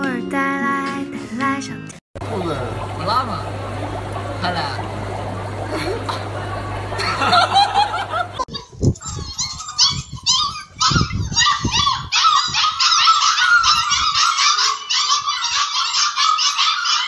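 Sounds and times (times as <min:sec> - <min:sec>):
puppies crying: 0:08.4 - 0:17.0.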